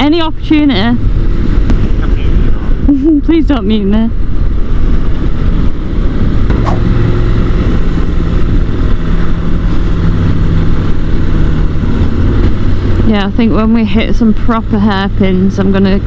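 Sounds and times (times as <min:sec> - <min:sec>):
wind rush on microphone: 0:00.0 - 0:16.0
motorcycle engine running: 0:04.4 - 0:16.0.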